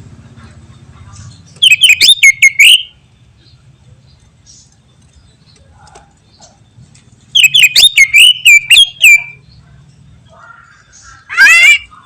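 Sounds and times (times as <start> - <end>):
bird chirping: 0.4 - 12.0
bird whistling downward notes: 1.6 - 3.0, 7.4 - 9.4.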